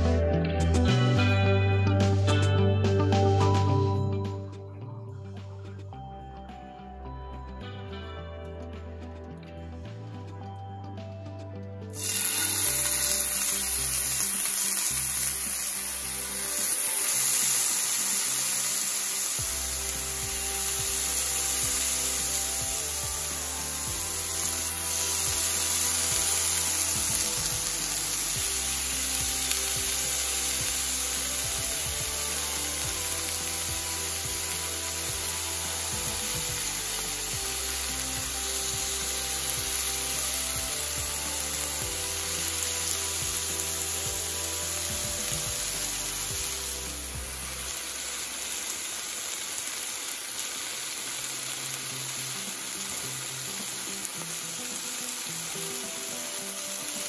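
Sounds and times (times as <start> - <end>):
background music: 0.0 - 57.0
meat sizzling on grill pan: 12.0 - 57.0.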